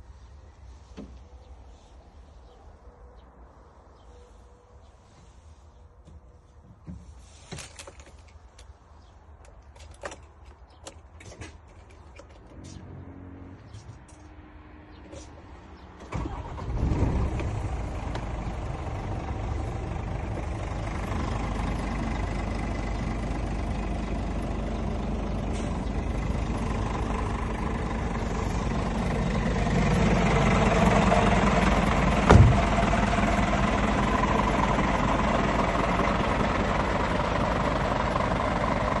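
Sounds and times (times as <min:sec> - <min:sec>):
truck diesel engine starting and idling: 0:15.8 - 0:39.0.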